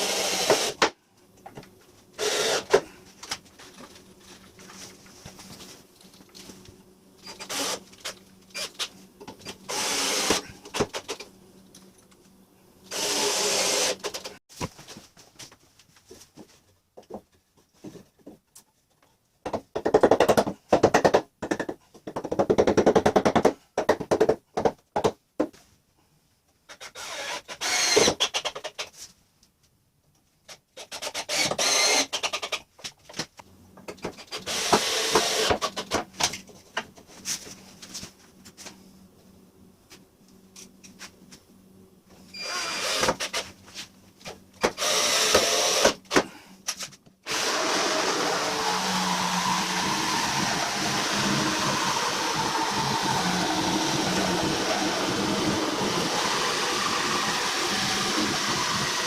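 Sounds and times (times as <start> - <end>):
power drill driving screws: 0.0 - 0.8, 2.2 - 2.8, 7.2 - 8.9, 9.7 - 11.0, 12.9 - 14.3, 26.8 - 28.8, 30.8 - 32.6, 34.3 - 35.9, 42.4 - 43.5, 44.6 - 46.2, 47.3 - 59.0.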